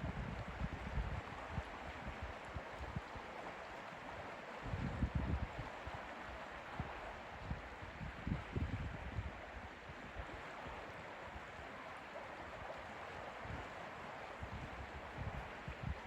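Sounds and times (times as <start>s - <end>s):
wind rumbling on microphone: 0.0s - 3.2s, 4.6s - 6.1s, 6.7s - 10.8s, 14.4s - 16.0s.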